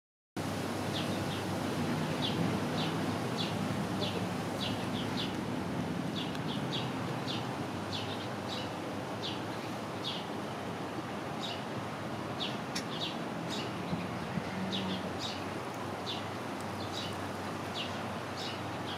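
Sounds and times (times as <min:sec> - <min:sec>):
small birds chirping: 0:02.2 - 0:05.4, 0:06.2 - 0:10.3, 0:11.4 - 0:11.7, 0:12.4 - 0:18.9.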